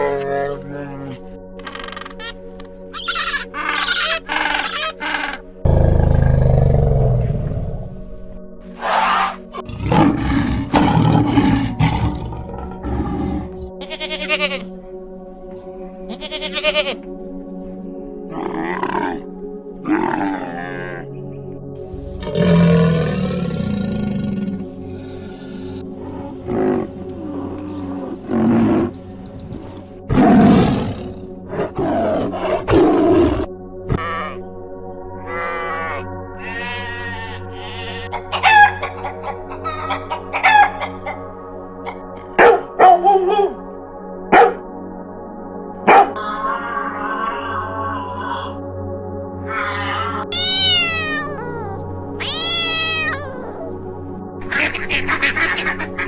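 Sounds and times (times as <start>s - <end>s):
background music: 0.0s - 56.0s
lion roaring and grunting: 5.6s - 7.9s, 8.8s - 13.7s, 18.3s - 21.1s, 22.0s - 24.8s, 30.1s - 34.0s
goat bleating: 13.8s - 14.7s, 16.1s - 17.0s, 35.3s - 38.3s, 49.5s - 53.4s.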